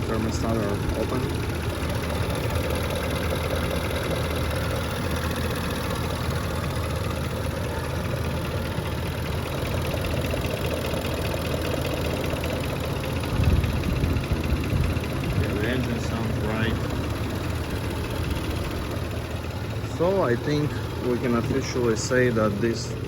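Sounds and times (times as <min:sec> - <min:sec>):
car engine idling: 0:00.0 - 0:23.0
electric cooling fan running: 0:08.7 - 0:23.0.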